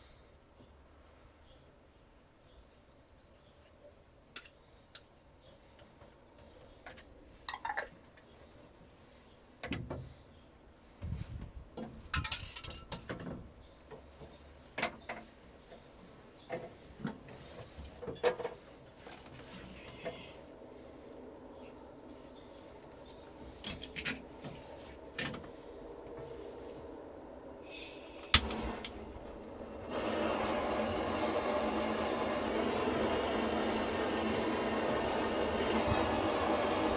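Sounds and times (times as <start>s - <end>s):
metal tools clinking and knocking: 12.2s - 13.0s.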